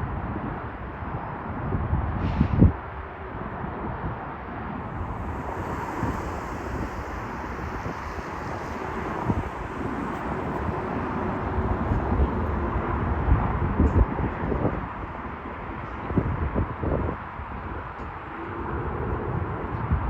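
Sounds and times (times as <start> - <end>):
wind buffeting microphone: 0.0 - 20.0
jet engine rushing hum: 4.7 - 16.3.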